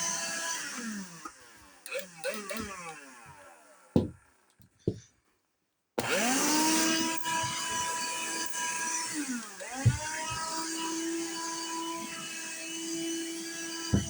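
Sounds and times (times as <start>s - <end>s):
handheld vacuum cleaner whining: 0.0s - 4.2s, 6.0s - 14.0s
thump: 9.8s - 10.4s.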